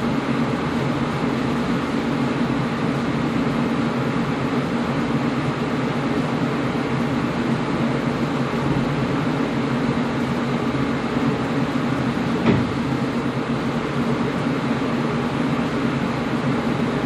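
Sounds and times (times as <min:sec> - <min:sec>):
air conditioner humming: 0:00.0 - 0:17.0.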